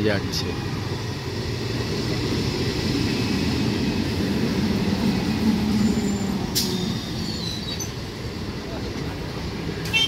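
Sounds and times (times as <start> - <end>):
faint high squeals: 5.8 - 8.0.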